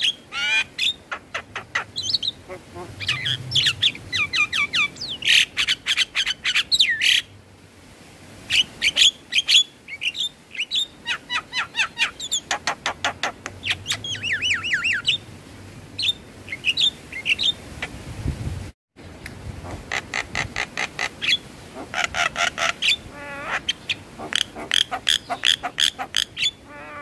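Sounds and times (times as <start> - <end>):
bird harsh chattering and whistles: 0.0 - 7.2, 8.9 - 15.2, 19.9 - 27.0.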